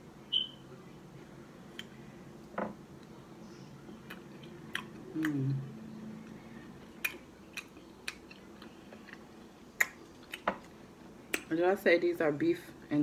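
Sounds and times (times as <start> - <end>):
person humming: 5.1 - 5.8.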